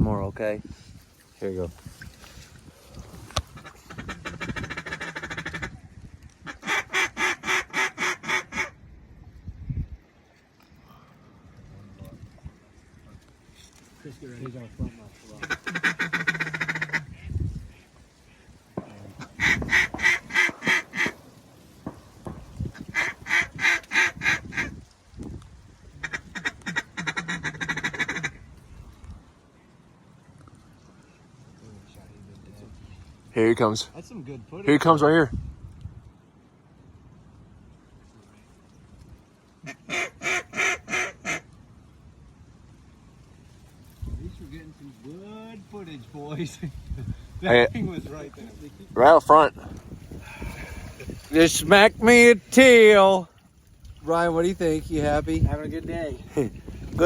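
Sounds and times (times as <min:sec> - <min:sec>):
duck call quacking: 0:03.5 - 0:05.8, 0:06.4 - 0:08.8, 0:15.4 - 0:18.4, 0:19.2 - 0:21.2, 0:22.8 - 0:24.8, 0:26.0 - 0:28.4, 0:39.6 - 0:41.5.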